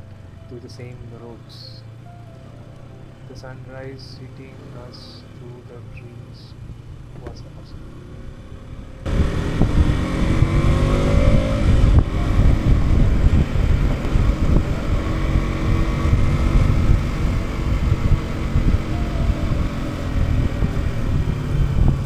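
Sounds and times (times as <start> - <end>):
wind and road noise: 0.0 - 22.0
motorcycle engine accelerating: 1.6 - 22.0.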